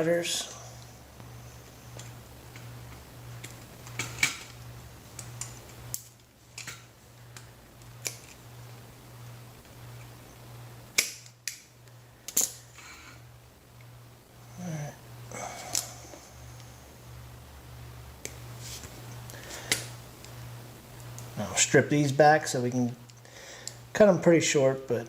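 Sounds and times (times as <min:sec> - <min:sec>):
steady low hum: 0:00.0 - 0:25.0
wire cutters snipping: 0:10.9 - 0:11.7.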